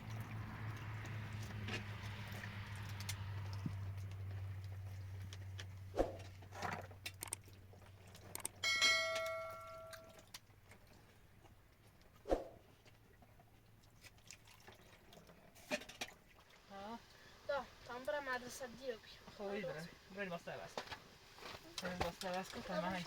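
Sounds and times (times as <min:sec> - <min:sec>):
low steady hum: 0:00.0 - 0:12.2
metal object struck ringing: 0:08.6 - 0:10.1.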